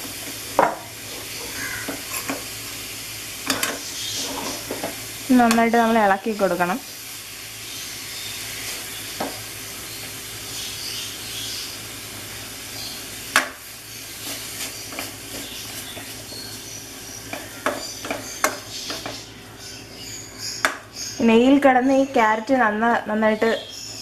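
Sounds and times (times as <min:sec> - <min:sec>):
spoon scraping a pan: 0:00.0 - 0:02.5, 0:03.4 - 0:05.8, 0:13.4 - 0:19.2
carrots sizzling in a pan: 0:00.0 - 0:24.0.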